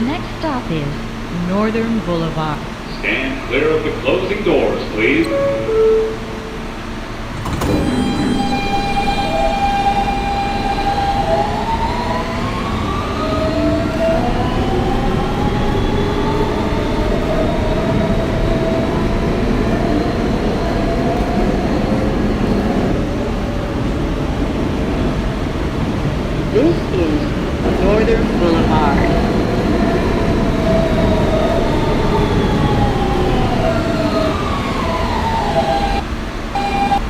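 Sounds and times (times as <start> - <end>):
subway doors closing: 0.0 - 37.0
traction motors whining: 0.0 - 37.0
wheels rumbling on rail: 0.0 - 37.0
ringing door chime: 7.5 - 12.0.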